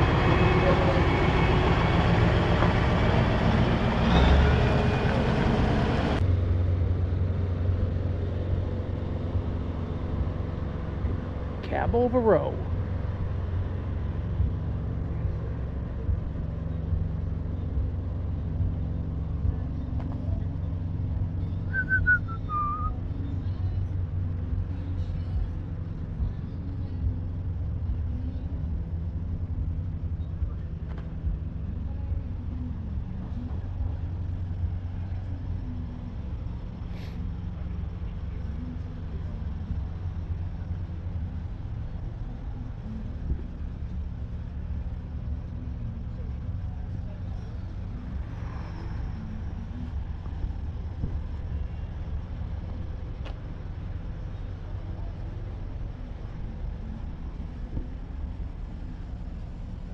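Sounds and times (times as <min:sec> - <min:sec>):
engine idling rumble: 0:00.0 - 0:59.9
falling whistle-like chirp: 0:21.7 - 0:23.0.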